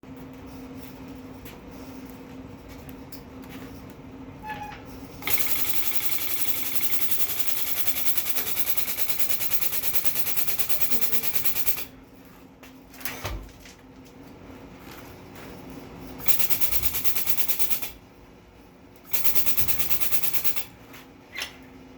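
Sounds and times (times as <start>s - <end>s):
steady low hum: 0.0s - 21.9s
pneumatic impact wrench hammering: 5.2s - 11.9s, 16.2s - 18.0s, 19.1s - 20.7s.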